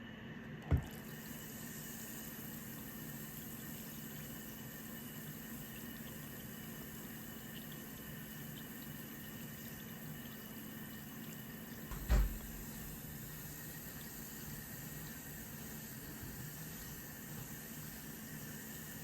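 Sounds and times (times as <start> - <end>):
faint hum: 0.0 - 19.0
dull thump: 11.9 - 12.4.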